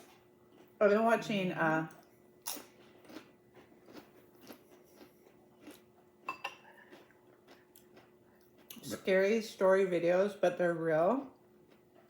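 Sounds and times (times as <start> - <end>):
person chewing crunchy food: 0.0 - 0.8, 1.9 - 9.1, 11.4 - 12.0.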